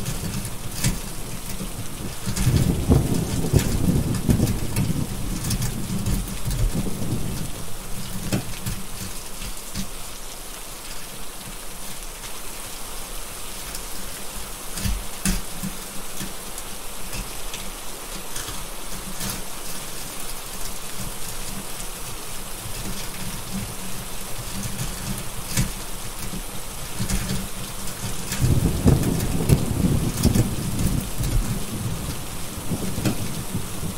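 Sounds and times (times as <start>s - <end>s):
wood fire crackling: 0.0s - 12.4s, 13.4s - 33.9s
heavy rain: 0.0s - 33.9s
rolling thunder: 1.9s - 7.7s, 27.9s - 33.9s.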